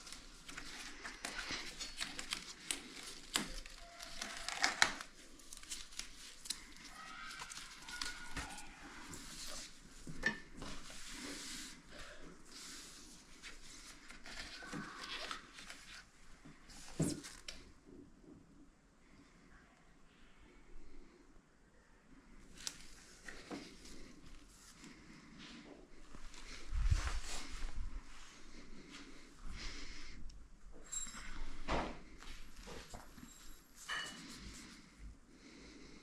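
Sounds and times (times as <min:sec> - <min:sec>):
sealing strip crinkling: 0:00.0 - 0:09.6.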